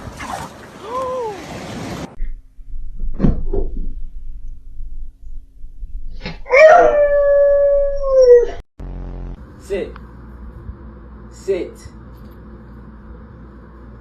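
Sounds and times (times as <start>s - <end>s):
dog howling: 6.5s - 8.6s.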